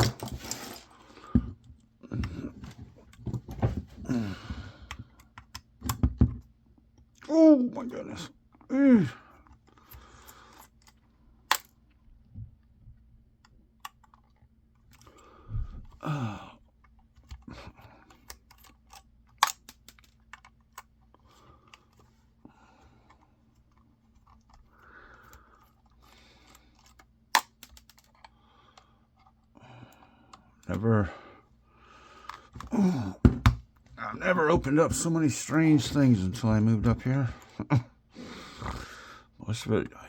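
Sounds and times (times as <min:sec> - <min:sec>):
small parts clicking and clattering: 0:00.0 - 0:03.8, 0:09.4 - 0:12.0, 0:13.4 - 0:16.0, 0:16.6 - 0:22.2, 0:22.8 - 0:30.8
sharp plastic snaps: 0:18.1 - 0:20.9, 0:26.8 - 0:28.2.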